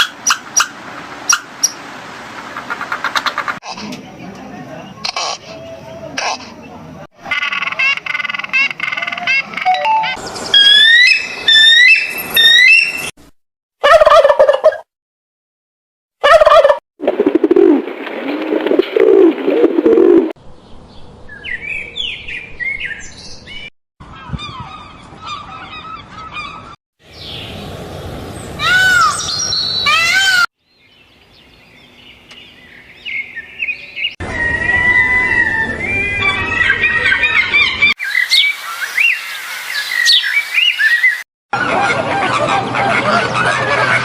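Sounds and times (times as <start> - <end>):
whistled bird calls: 9.6 - 13.1, 28.7 - 30.1, 32.4 - 41.2.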